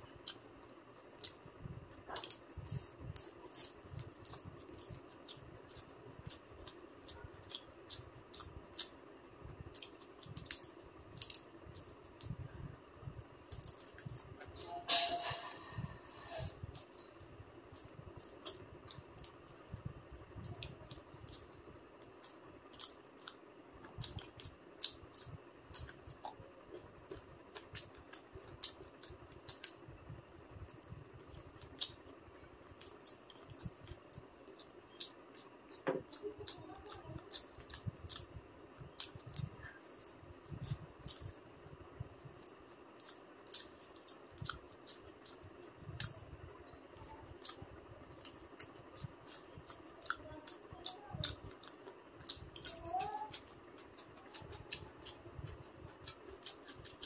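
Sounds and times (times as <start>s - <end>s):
soft chewing thuds: 15.7s - 57.0s.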